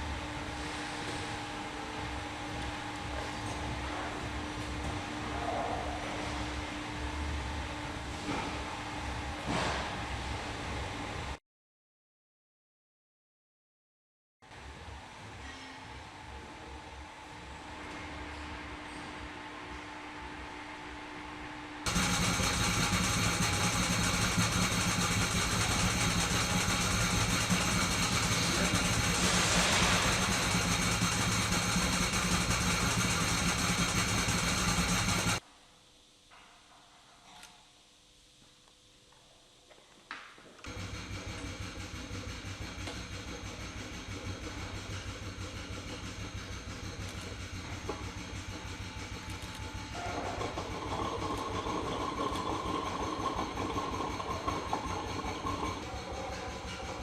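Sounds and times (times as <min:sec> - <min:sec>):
loud machine noise: 0:21.8 - 0:35.4, 0:40.7 - 0:57.0.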